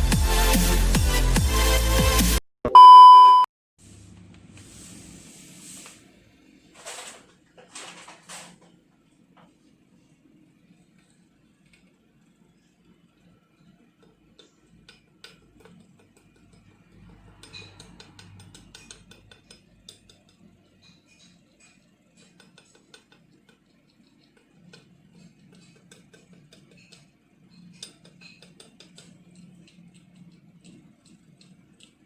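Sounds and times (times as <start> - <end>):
utensils clinking against dishes: 14.4 - 23.5, 24.2 - 29.8.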